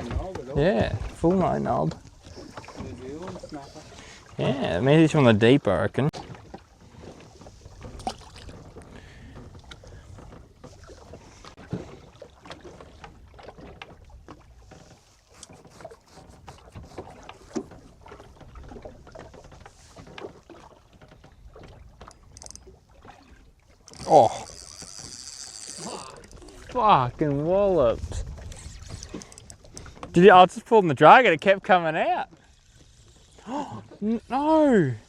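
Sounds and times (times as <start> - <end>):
water lapping against boat hull: 0.0 - 35.0
light knocks and clicks of gear: 12.9 - 22.8, 28.4 - 30.2.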